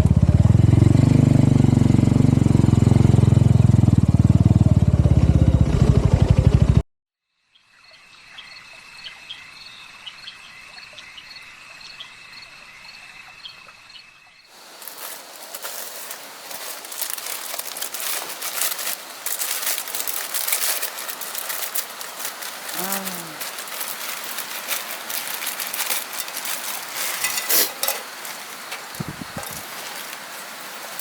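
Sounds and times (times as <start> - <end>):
insect chirps: 7.2 - 31.0
night insects trilling: 7.3 - 31.0
dense rain falling: 14.6 - 31.0.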